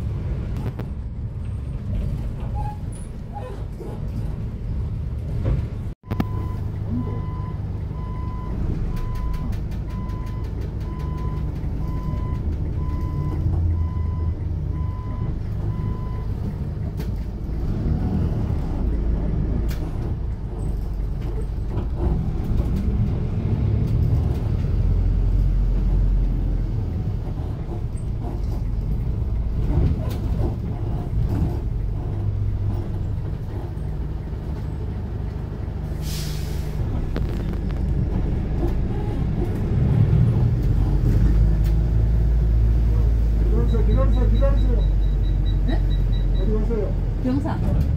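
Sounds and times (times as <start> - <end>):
bus engine rumbling: 0.0 - 47.9
electronic warning beep: 43.6 - 46.7.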